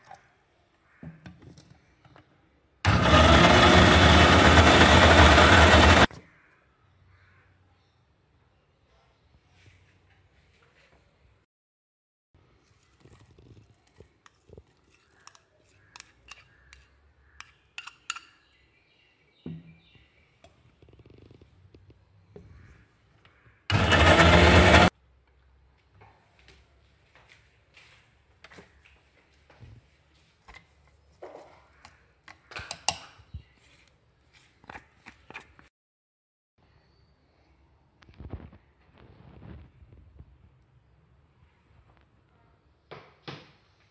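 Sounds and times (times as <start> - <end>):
spoon scraping a glass bowl: 14.2 - 18.4
spoon clicking against bowl: 15.1 - 18.4.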